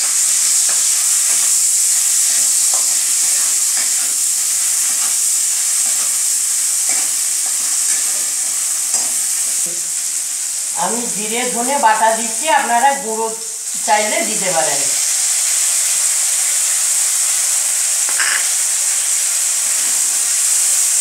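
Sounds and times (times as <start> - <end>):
food sizzling in oil: 0.0 - 21.0
metal spatula scraping pan: 18.1 - 18.6.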